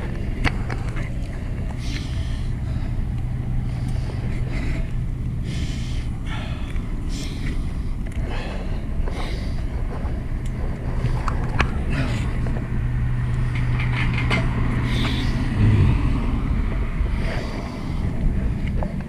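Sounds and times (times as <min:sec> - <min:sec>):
traffic: 0:00.0 - 0:19.0
wind and road rumble: 0:00.0 - 0:19.0.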